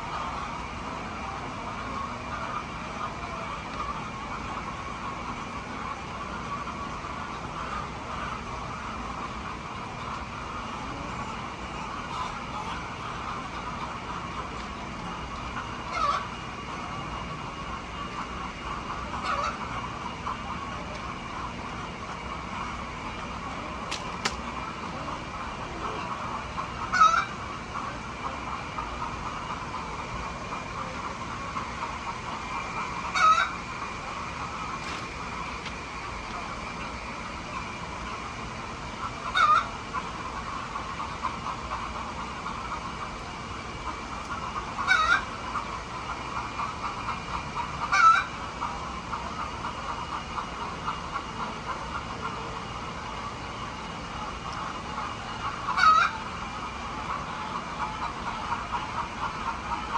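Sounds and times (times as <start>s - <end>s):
chickens clucking: 23.9s - 24.4s, 33.0s - 36.4s
sharp clicks: 23.9s - 24.5s
chicken squawks: 55.7s - 56.2s.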